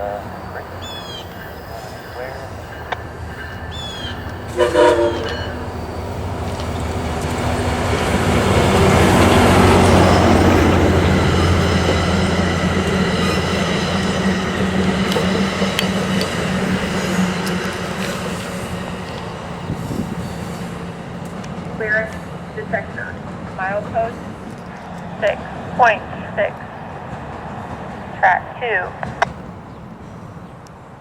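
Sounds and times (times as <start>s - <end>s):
locomotive engine drone: 0.0s - 31.0s
train rumble passing: 0.0s - 31.0s
train horn blast: 4.5s - 5.7s.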